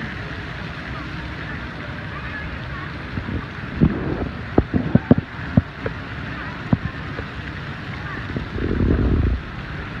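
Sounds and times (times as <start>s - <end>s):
rain falling: 0.0s - 10.0s
low rumble: 8.4s - 10.0s.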